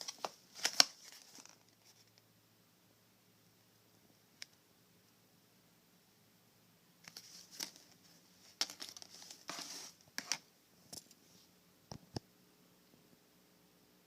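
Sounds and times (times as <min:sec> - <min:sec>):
packaging crinkling and rustling: 0:00.0 - 0:02.1, 0:07.1 - 0:10.4.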